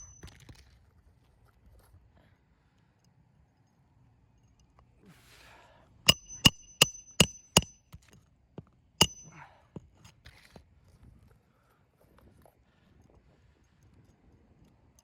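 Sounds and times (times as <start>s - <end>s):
hammer striking roofing nails: 6.1s - 7.7s, 9.0s - 9.3s.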